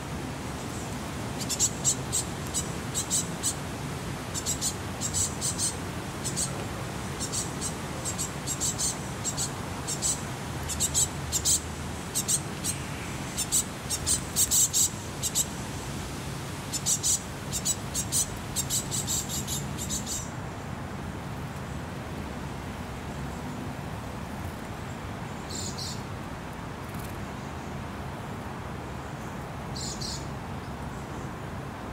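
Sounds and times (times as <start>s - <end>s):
small birds calling: 0.6s - 3.6s, 4.3s - 15.5s, 16.7s - 20.4s, 25.3s - 26.1s, 29.1s - 30.3s.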